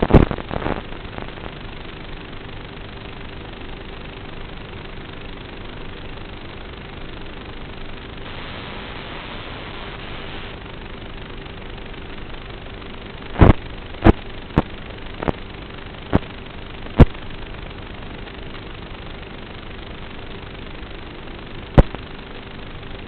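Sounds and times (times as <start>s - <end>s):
steady hum: 0.0s - 23.0s
noisy background: 7.1s - 11.0s.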